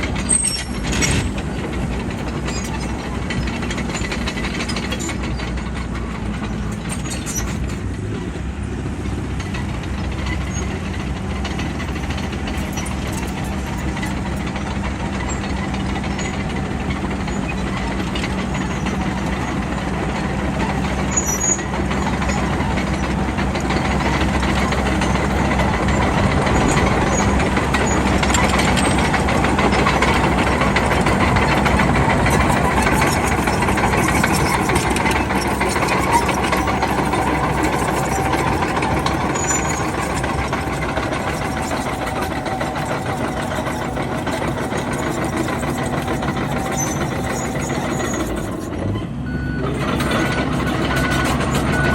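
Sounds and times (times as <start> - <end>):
bulldozer diesel engine running: 0.0 - 51.9.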